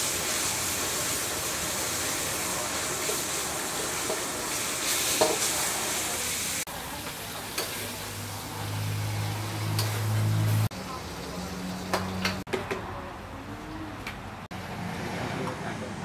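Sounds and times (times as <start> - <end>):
food sizzling in a wok: 0.0 - 12.4.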